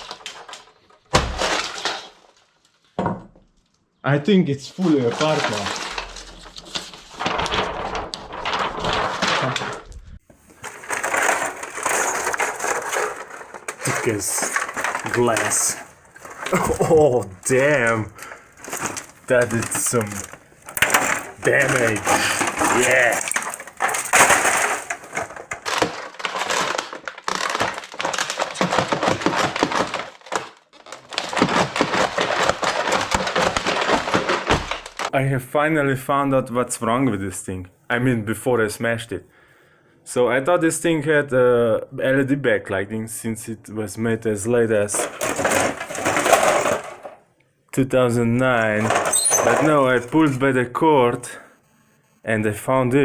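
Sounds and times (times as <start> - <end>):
plastic and glass pieces crunching: 0.0 - 3.0, 4.8 - 35.1, 44.9 - 47.2, 48.5 - 50.4
plastic and metal parts clattering: 0.0 - 3.7, 4.8 - 35.2, 44.7 - 47.3, 48.3 - 50.5.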